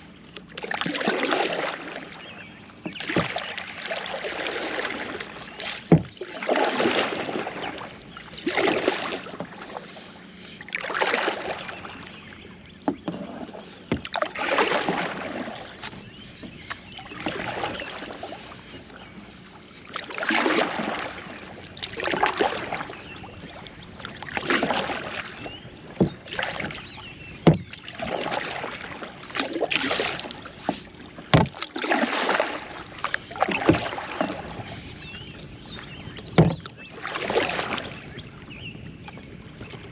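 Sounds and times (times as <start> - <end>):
kayak paddle splashing in water: 0.4 - 38.3
sharp knocks: 31.3 - 31.6, 36.4 - 36.7.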